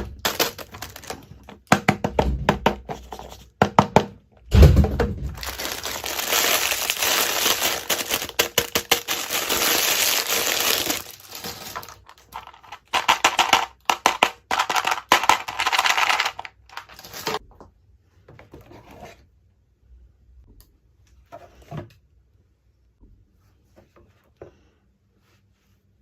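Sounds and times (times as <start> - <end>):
packaging crinkling and rustling: 0.0 - 1.6, 5.2 - 17.4
small toys clicking and tapping: 10.8 - 17.0.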